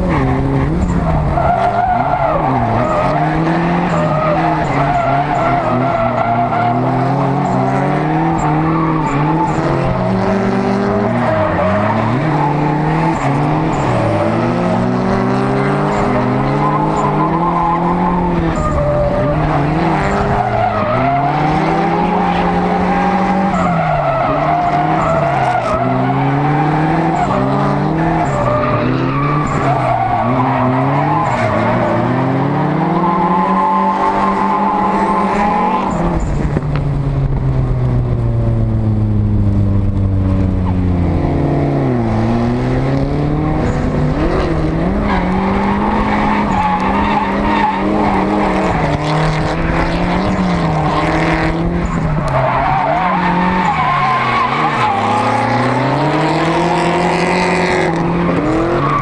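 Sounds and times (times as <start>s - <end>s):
car engine revving: 0.0s - 59.0s
tyres skidding: 0.0s - 59.0s.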